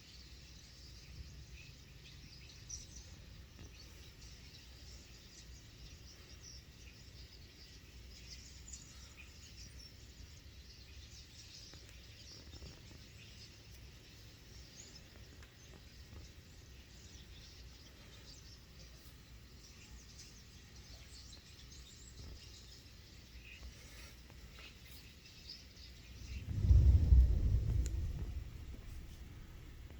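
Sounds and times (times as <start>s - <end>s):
flock of small birds chirping: 0.0s - 29.9s
low background rumble: 26.0s - 29.9s.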